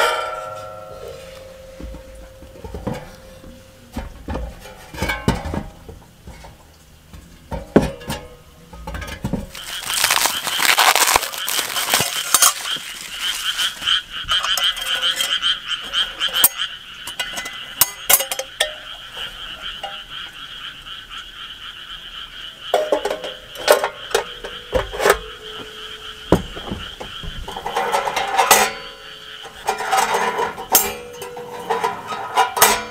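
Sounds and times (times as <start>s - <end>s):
frogs trilling: 9.5s - 32.7s.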